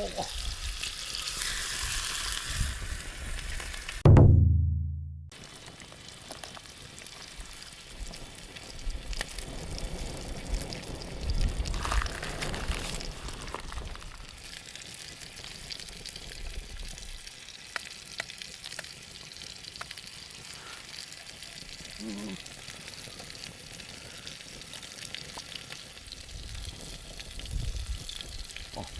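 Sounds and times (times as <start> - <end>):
food sizzling in a frying pan: 0.0 - 4.0, 5.4 - 28.9
low rumble: 4.1 - 5.3.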